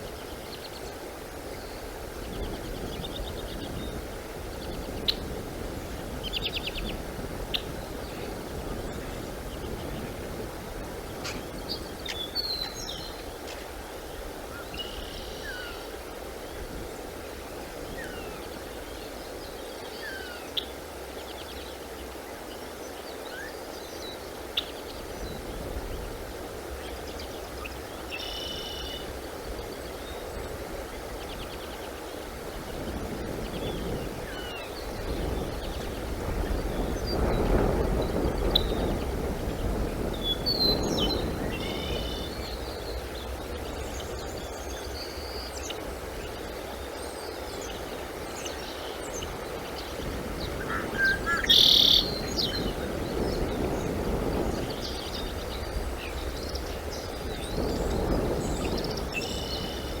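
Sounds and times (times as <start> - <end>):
outdoor background noise: 0.0 - 60.0
bird chirps and calls: 50.5 - 52.8.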